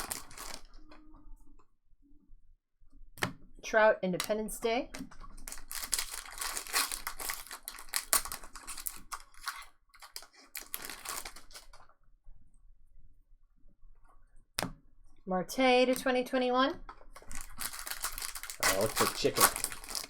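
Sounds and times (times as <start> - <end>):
plastic wrapper tearing and crinkling: 0.0 - 1.1, 5.3 - 11.9, 17.1 - 20.0.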